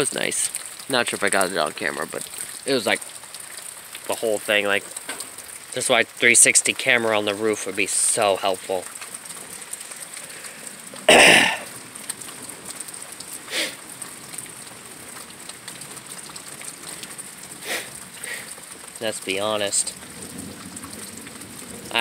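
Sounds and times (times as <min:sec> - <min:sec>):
steady rain falling: 0:00.0 - 0:22.0
short cough-like bursts: 0:11.1 - 0:11.7.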